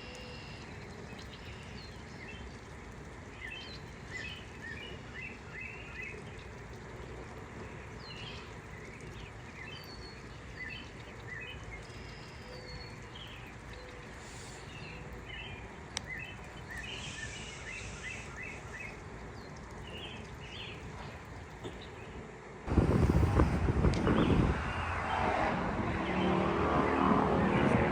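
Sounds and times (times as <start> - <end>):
small birds chirping: 0.0 - 22.3
steady low rumble: 22.6 - 27.9.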